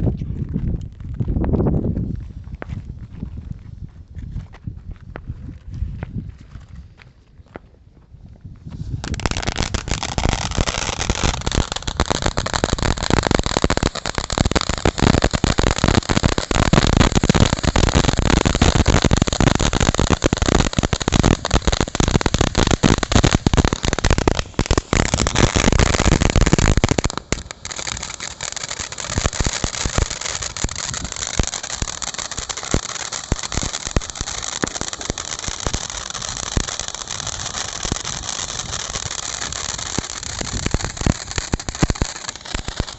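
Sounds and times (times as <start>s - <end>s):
firework fountain crackling: 8.8s - 42.9s
firework rushing hiss: 8.8s - 42.9s.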